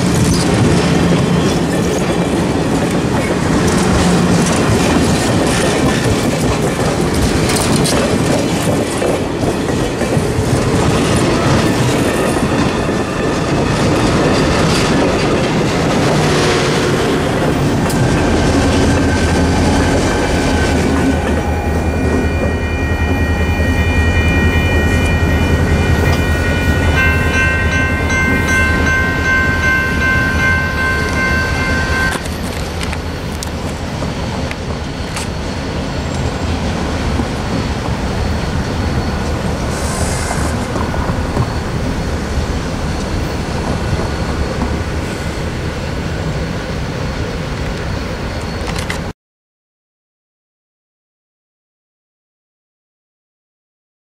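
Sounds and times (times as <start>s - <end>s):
diesel locomotive rumbling: 0.0s - 49.1s
distant train: 0.0s - 49.1s
train coaches clattering over rails: 0.0s - 49.1s
steady high ringing tones: 20.1s - 48.9s.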